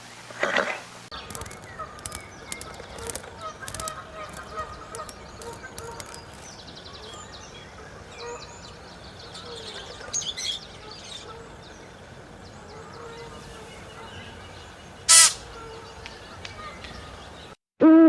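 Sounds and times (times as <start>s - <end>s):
outdoor background noise: 0.0s - 17.6s
small birds chirping: 1.1s - 7.3s.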